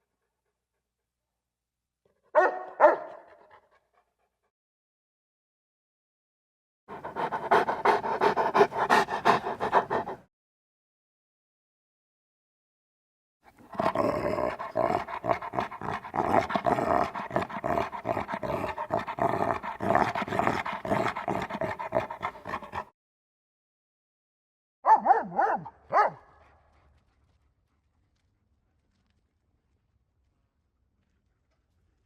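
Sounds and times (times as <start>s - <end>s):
dog growling: 6.9s - 10.3s, 13.5s - 22.9s.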